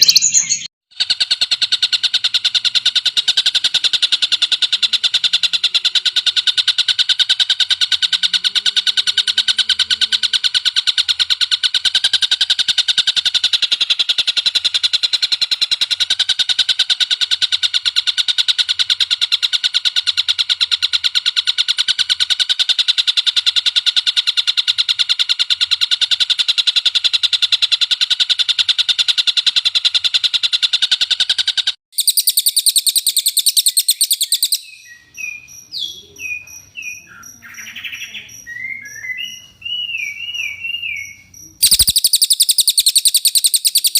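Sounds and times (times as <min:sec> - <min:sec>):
songbird rapid trilling: 0:00.0 - 0:43.9.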